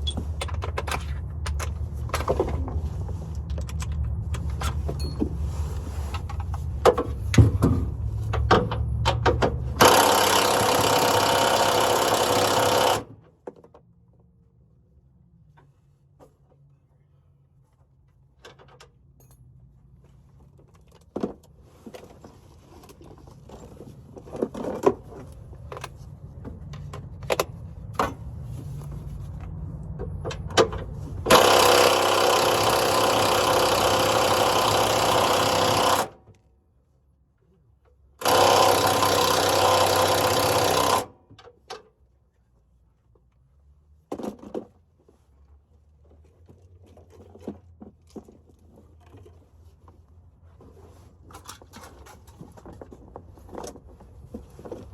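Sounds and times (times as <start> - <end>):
power tool running: 9.8 - 13.1, 31.3 - 36.2, 38.2 - 41.1.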